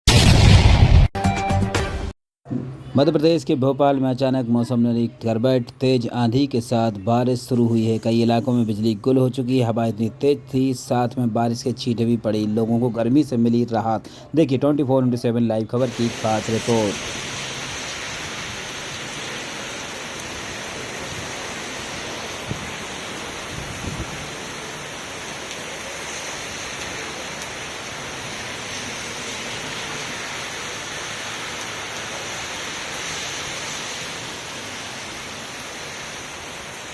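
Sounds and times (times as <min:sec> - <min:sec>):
heavy rain: 0:15.8 - 0:36.9.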